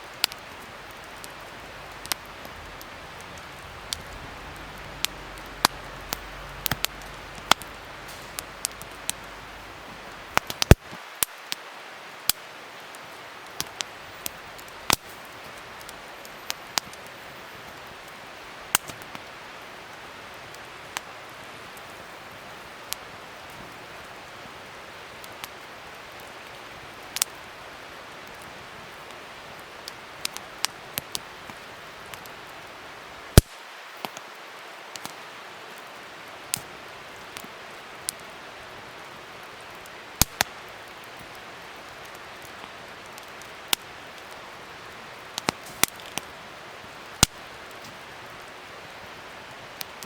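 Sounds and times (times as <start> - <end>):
wood fire crackling: 0.0 - 50.0
fire pops and snaps: 0.1 - 11.6, 12.2 - 21.1, 25.2 - 27.4, 33.4 - 34.2, 36.5 - 37.5, 39.6 - 41.4, 42.0 - 44.4, 45.3 - 49.0.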